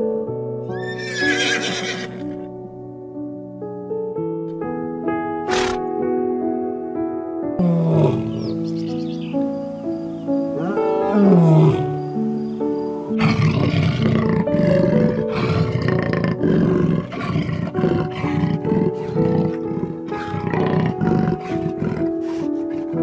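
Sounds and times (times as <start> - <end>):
calm background music: 0.0 - 23.0
animal rasping roar: 7.6 - 8.4, 10.6 - 11.9, 13.2 - 23.0.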